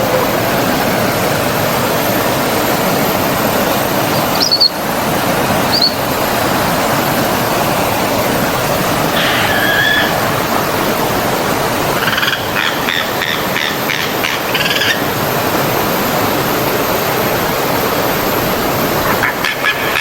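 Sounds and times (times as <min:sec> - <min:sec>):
stream water rushing: 0:00.0 - 0:20.0
animal high pulsed calls: 0:04.0 - 0:05.0, 0:05.6 - 0:06.1, 0:09.1 - 0:10.4.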